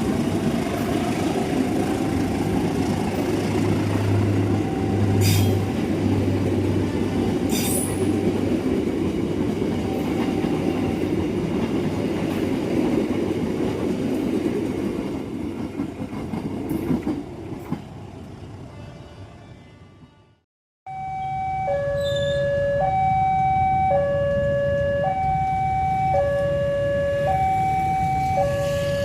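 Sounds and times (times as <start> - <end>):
train wheels rumbling on rail: 0.0 - 18.3.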